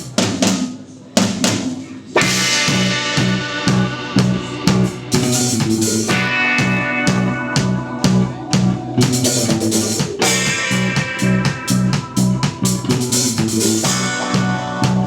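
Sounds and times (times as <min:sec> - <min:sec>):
drum hits: 0:00.0 - 0:15.0
electric bass riff: 0:02.2 - 0:15.0
sustained electric guitar chords: 0:02.2 - 0:15.0.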